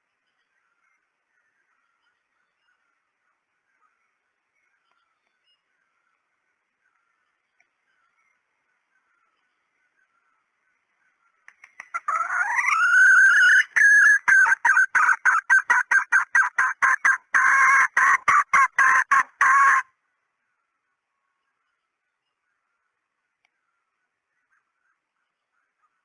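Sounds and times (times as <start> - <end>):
hen calling and clucking: 11.0 - 20.0.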